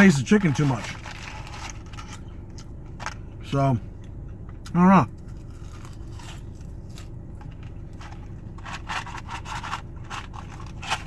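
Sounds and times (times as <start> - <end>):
crunchy chewing: 5.2 - 11.0.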